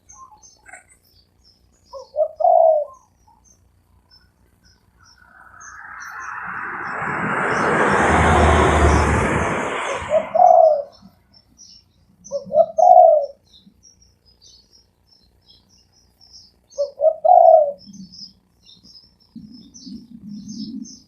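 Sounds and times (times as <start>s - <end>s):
small birds chirping: 0.0s - 7.7s, 10.1s - 21.0s
doves cooing: 2.0s - 3.1s, 12.3s - 13.4s, 16.8s - 18.0s
rushing noise with low rumble: 5.1s - 11.1s.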